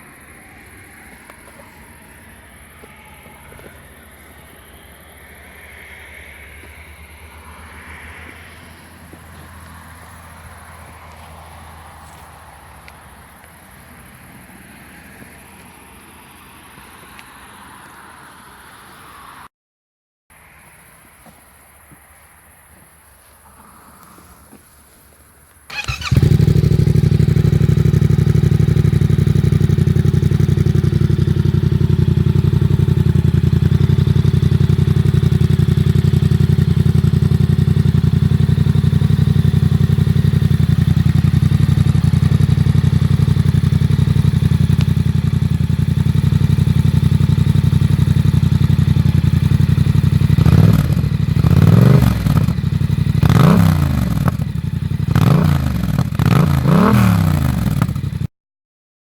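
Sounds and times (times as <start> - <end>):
motorcycle engine idling: 25.7 - 58.3
motorcycle throttle blips: 25.7 - 58.3.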